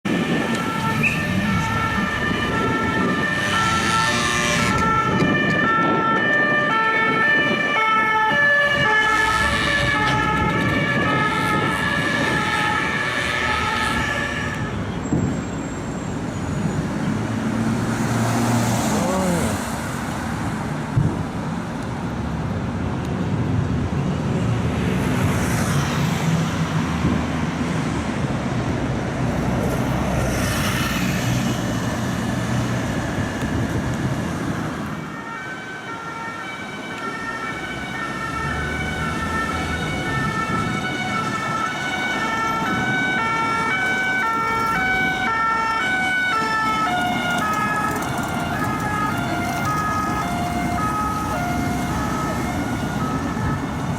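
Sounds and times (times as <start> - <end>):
road traffic and engines: 0.0 - 53.9
two-tone police siren: 0.1 - 15.2, 34.7 - 53.9.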